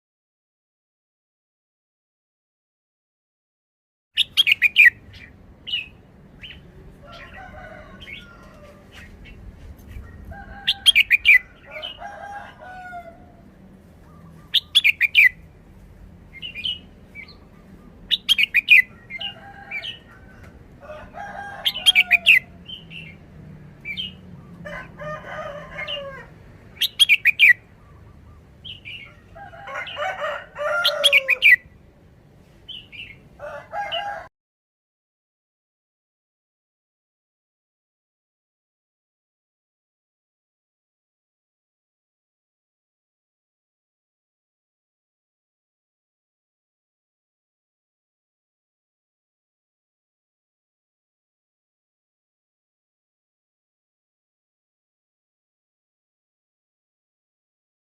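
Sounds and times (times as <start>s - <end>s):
bird singing loud phrases: 4.2s - 7.4s, 14.0s - 15.5s, 16.3s - 20.1s, 21.6s - 24.6s, 26.7s - 30.0s
roosters crowing: 6.4s - 15.3s, 17.7s - 23.2s, 23.8s - 28.2s, 28.8s - 31.7s, 33.0s - 34.3s.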